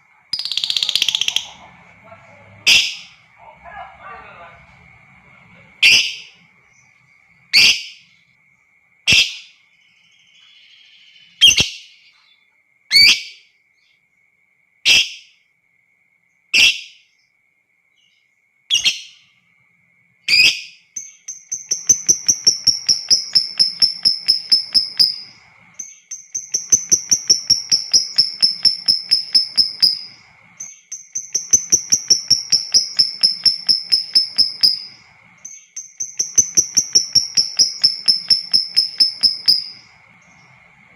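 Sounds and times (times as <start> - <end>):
lovebird chattering trills: 0.3 - 4.6, 5.2 - 6.9, 20.3 - 40.9
lovebird sharp shrill calls: 0.4 - 1.6, 5.8 - 6.4, 7.5 - 8.0, 11.3 - 11.8, 20.3 - 40.5.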